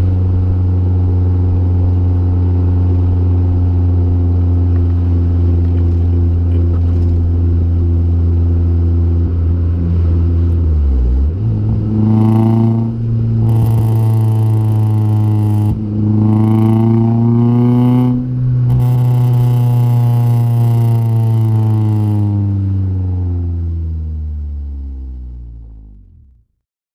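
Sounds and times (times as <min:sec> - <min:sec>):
car engine revving: 0:00.0 - 0:26.4.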